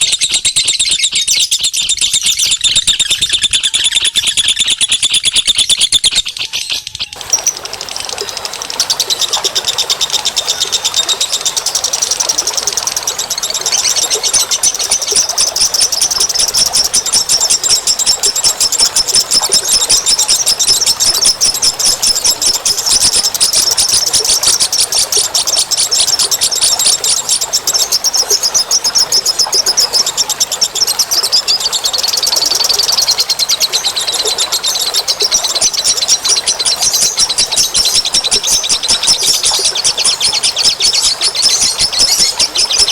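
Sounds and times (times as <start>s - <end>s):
birds chattering trill: 0.0s - 42.9s.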